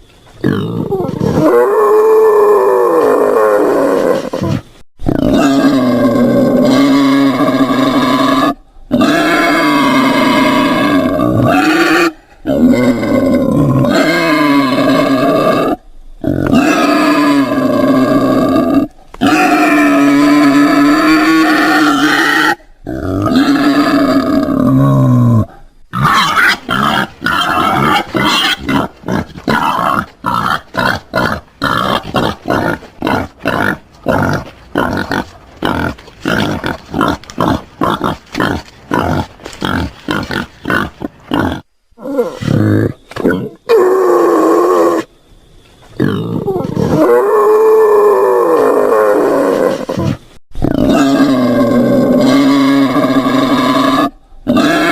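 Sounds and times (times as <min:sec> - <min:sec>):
wild boar calling: 0:00.4 - 0:45.1, 0:46.0 - 0:54.9
wild boar grunting: 0:03.9 - 0:44.2.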